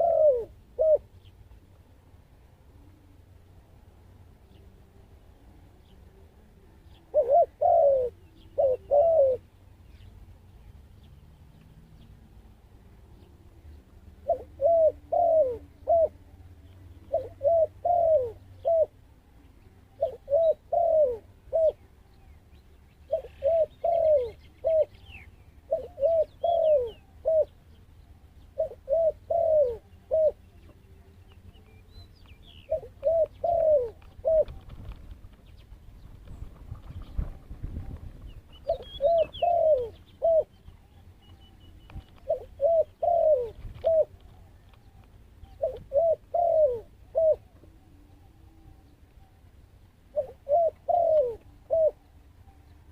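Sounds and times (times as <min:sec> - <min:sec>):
dove cooing: 0:00.0 - 0:01.3, 0:04.5 - 0:09.6, 0:13.2 - 0:19.0, 0:19.6 - 0:22.3, 0:22.9 - 0:31.7, 0:32.5 - 0:35.1, 0:36.2 - 0:52.9
faint high bird chirps: 0:35.5 - 0:49.6.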